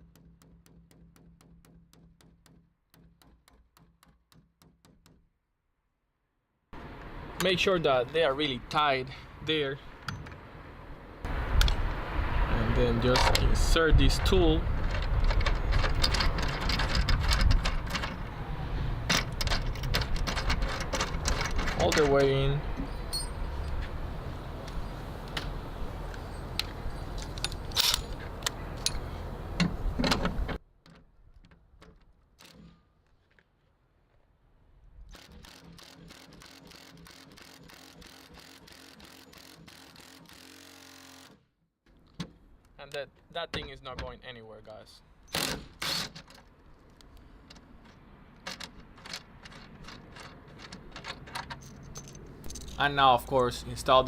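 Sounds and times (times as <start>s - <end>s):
small metal parts clicking: 26.1s - 29.0s, 46.1s - 53.0s.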